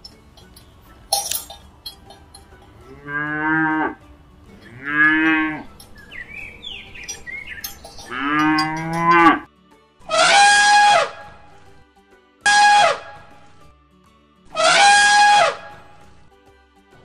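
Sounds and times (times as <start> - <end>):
cows mooing: 2.8 - 4.0, 4.6 - 5.9, 7.1 - 9.5
elephant trumpeting: 4.6 - 5.8, 10.0 - 11.5, 12.5 - 13.3, 14.5 - 16.1.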